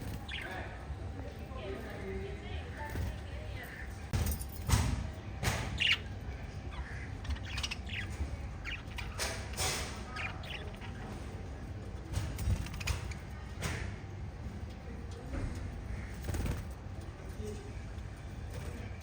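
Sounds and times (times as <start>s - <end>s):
budgerigars chirping and squawking: 0.0s - 0.7s, 5.5s - 11.4s.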